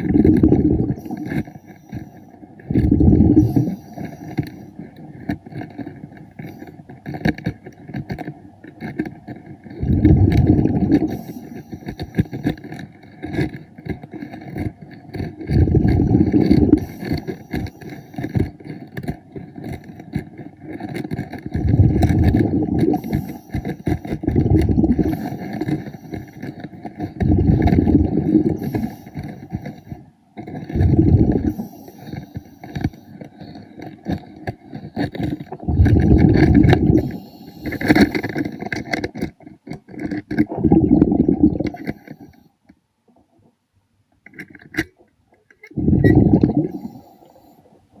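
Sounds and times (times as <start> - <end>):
air bubbles from diver's regulator: 0.0 - 1.6, 2.6 - 4.4, 9.7 - 12.5, 15.4 - 18.6, 21.5 - 26.4, 27.0 - 29.8, 30.6 - 32.9, 35.0 - 39.0, 40.3 - 42.3, 45.7 - 47.4
faint crackling and clicking: 0.0 - 48.0.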